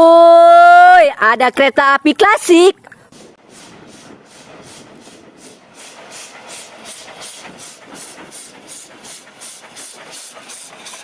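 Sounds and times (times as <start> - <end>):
steam locomotive chuffing: 3.1 - 11.0.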